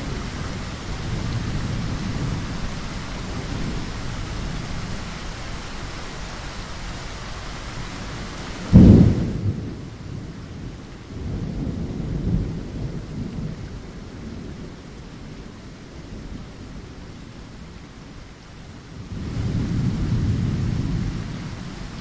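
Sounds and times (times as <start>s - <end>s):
low rolling thunder: 0.0s - 5.4s, 7.9s - 17.8s, 18.7s - 22.0s
steady rain: 0.0s - 22.0s
loud thunderclap: 8.7s - 9.8s, 19.1s - 22.0s.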